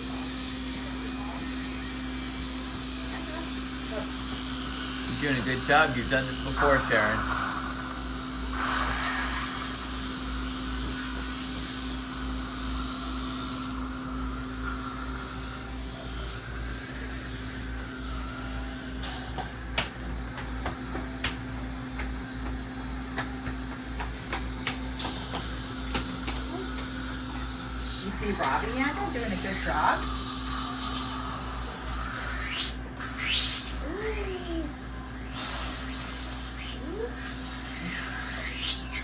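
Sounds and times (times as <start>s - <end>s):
dental equipment hissing and humming: 0.0s - 39.0s
instruments clicking against teeth: 18.1s - 28.8s.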